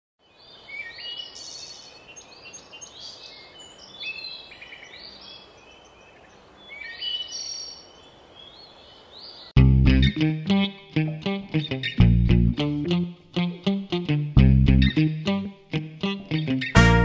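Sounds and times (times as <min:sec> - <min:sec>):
outdoor background hiss: 0:00.2 - 0:09.6
songbirds chirping and singing: 0:00.2 - 0:09.6.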